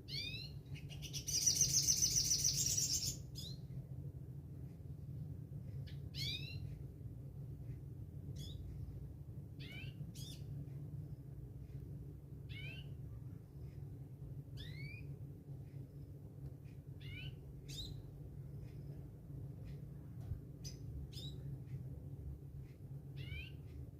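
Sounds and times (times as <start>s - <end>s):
steady low hum: 0.0s - 23.9s
songbird whistled calls: 0.1s - 3.6s, 6.1s - 6.7s, 14.6s - 15.1s, 17.0s - 18.0s.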